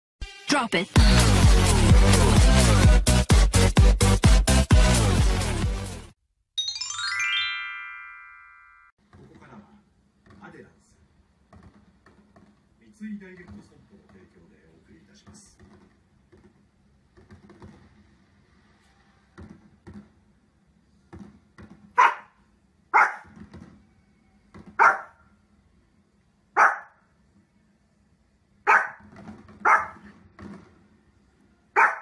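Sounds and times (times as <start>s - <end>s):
small dog barking: 22.0s - 23.3s, 24.8s - 25.2s, 26.6s - 27.0s, 28.6s - 29.0s, 29.6s - 30.1s, 31.8s - 32.0s.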